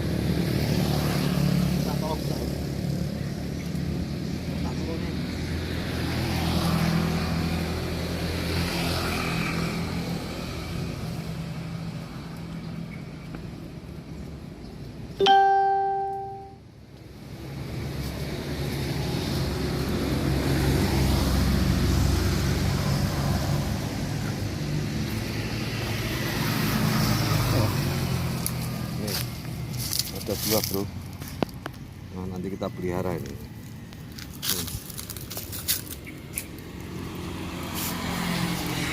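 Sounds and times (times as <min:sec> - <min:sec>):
vehicle engine humming: 0:00.0 - 0:38.9
bright ringing note: 0:15.2 - 0:16.6.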